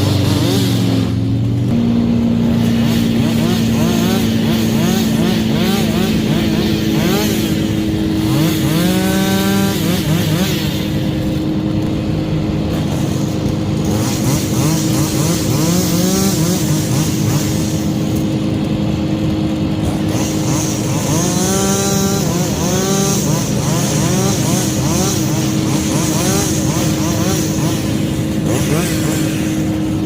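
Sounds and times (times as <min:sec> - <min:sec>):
chainsaw revving: 0:00.0 - 0:30.0
engine droning steadily: 0:00.0 - 0:30.0.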